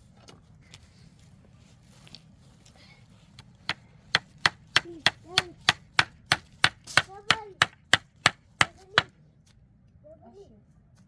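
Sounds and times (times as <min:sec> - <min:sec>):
rhythmic sharp chopping strikes: 0:03.7 - 0:09.1.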